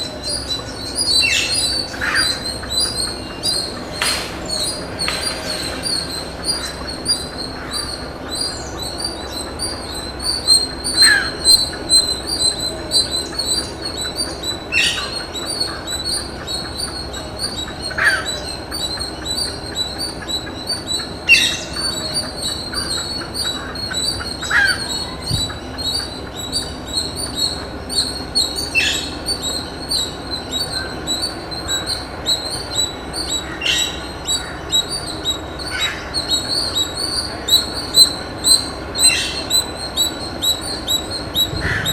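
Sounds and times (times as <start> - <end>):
shrill insect chorus: 0.0 - 41.9
bird falling call: 41.4 - 41.9.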